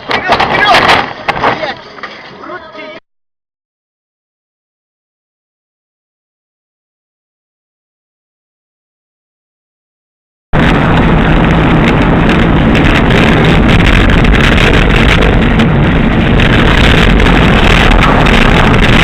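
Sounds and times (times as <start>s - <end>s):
moving vehicle rumble: 10.6s - 19.0s
wind buffeting microphone: 10.6s - 19.0s.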